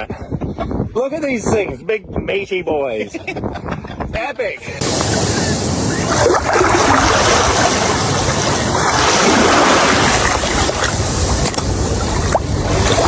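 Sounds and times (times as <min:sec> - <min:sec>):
wind rushing: 0:04.6 - 0:13.0
sea waves: 0:04.8 - 0:13.0.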